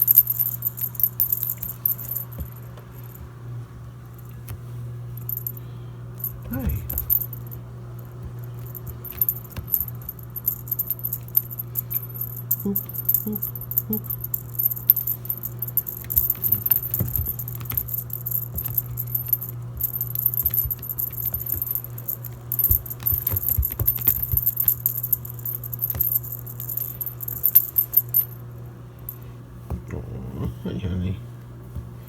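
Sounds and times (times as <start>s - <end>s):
light jingling rattle: 0.0s - 3.3s, 5.1s - 28.5s
washing machine humming: 0.0s - 32.0s
knocks and taps: 1.2s - 3.3s, 8.2s - 28.1s.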